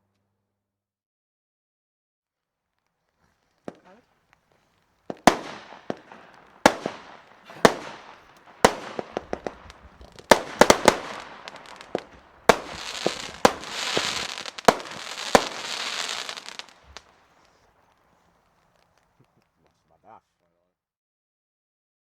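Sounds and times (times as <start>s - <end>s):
firework bangs: 3.2s - 20.2s
firework crackling: 3.2s - 20.2s.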